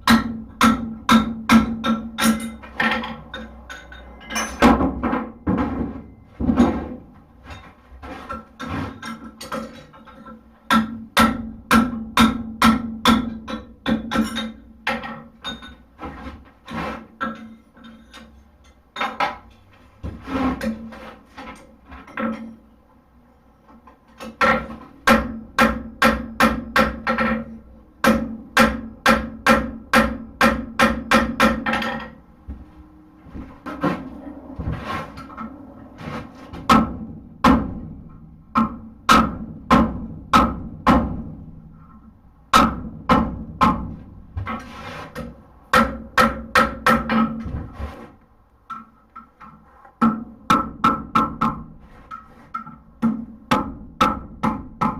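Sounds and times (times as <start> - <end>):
hammer striking steel on anvil: 0.0 - 5.6.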